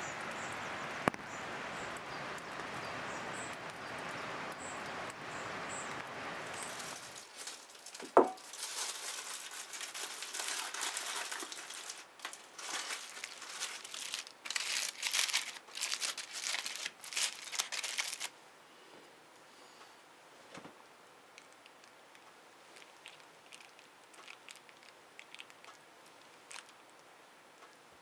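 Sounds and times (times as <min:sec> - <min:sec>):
wrapping crinkling: 0:06.5 - 0:18.4, 0:21.3 - 0:27.1.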